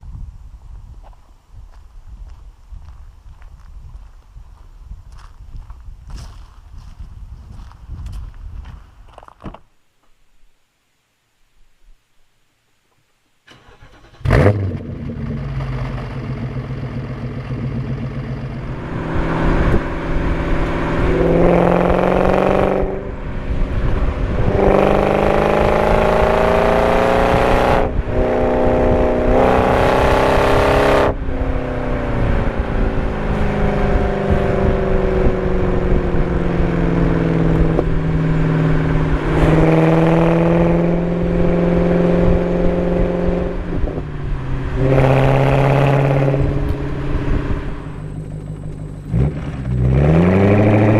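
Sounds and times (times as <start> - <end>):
car engine revving through gears: 13.5 - 50.9.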